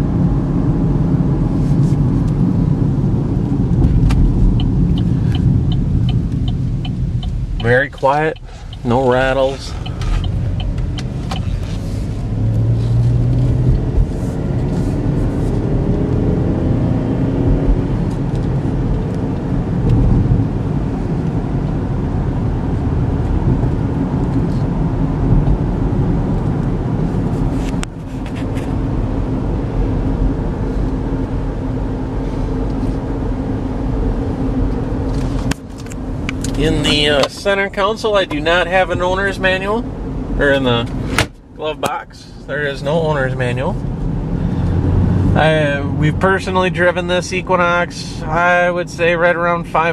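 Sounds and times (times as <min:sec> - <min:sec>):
car engine and road noise: 0:00.0 - 0:49.9.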